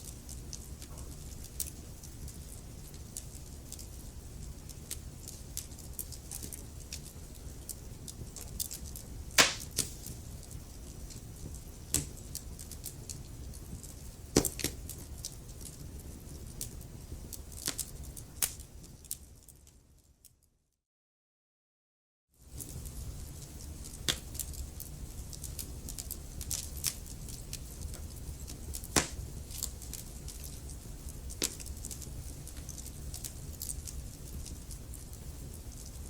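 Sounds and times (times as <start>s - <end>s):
wood fire crackling: 0.0s - 20.1s, 22.4s - 36.0s
loud pops of fire: 9.4s - 10.2s, 28.8s - 30.0s.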